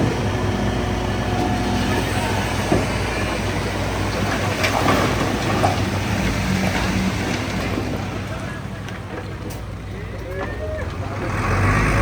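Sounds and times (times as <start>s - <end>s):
steel tracks clanking: 0.0s - 11.3s
diesel engine running: 0.0s - 12.0s.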